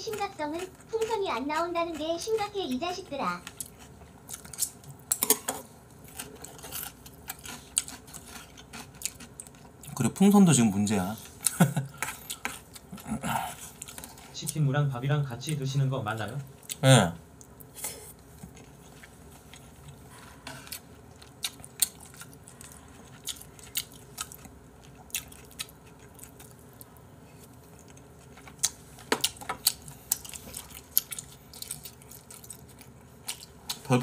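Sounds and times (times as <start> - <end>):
person chewing: 0.1 - 2.8, 3.4 - 5.3, 6.0 - 10.0, 11.2 - 14.4, 16.5 - 34.0.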